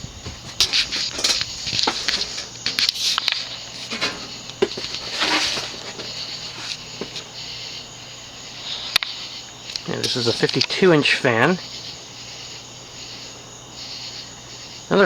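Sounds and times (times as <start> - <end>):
clicks and rustles: 0.0 - 7.6, 8.9 - 10.8
ceiling fan motor humming: 0.0 - 13.8.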